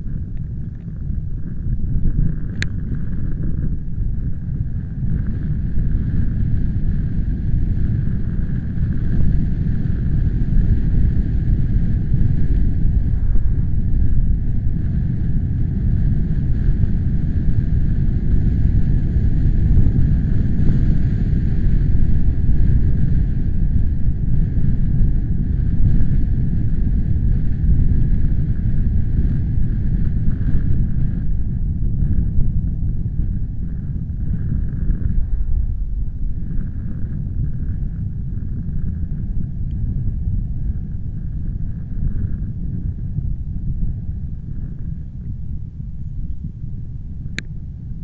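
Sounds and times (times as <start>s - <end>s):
wind buffeting microphone: 0.0s - 48.0s.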